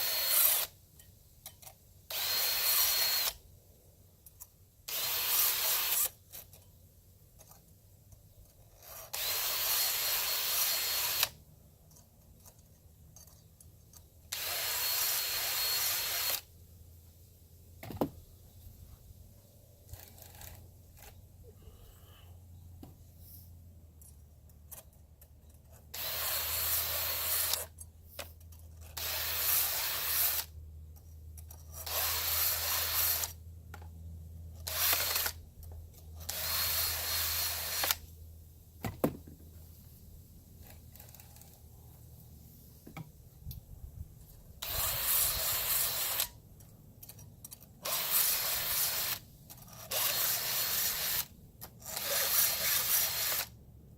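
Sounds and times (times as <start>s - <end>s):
chain sharpener grinding: 4.9s - 6.7s, 19.9s - 21.2s, 34.6s - 38.0s, 44.6s - 53.6s.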